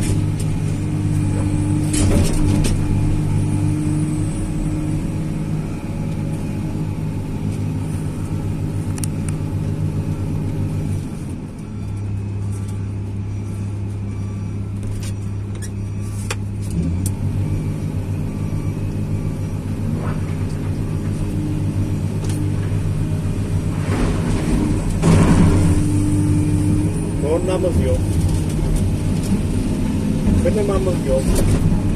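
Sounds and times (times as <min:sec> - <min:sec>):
excavator diesel engine running: 0:00.0 - 0:31.9
loud clatter: 0:23.7 - 0:26.0.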